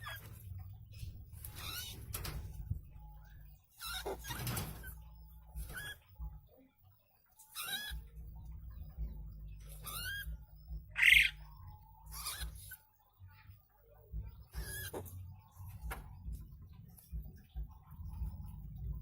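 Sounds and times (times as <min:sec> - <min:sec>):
small animal squeaky calls: 0:00.0 - 0:00.5, 0:01.4 - 0:02.4, 0:03.7 - 0:06.2, 0:07.4 - 0:08.2, 0:09.7 - 0:12.8, 0:14.4 - 0:15.3
low rumble: 0:08.0 - 0:12.2, 0:15.2 - 0:19.0.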